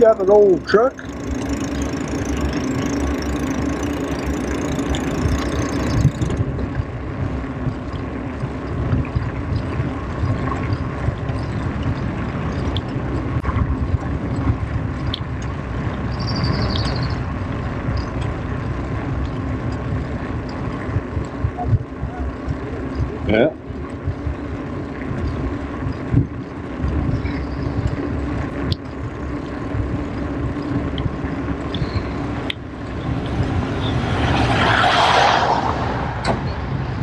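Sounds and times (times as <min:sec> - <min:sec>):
wind buffeting microphone: 0:00.0 - 0:34.9, 0:35.5 - 0:37.0
low rumble of bicycle riding: 0:00.0 - 0:37.0.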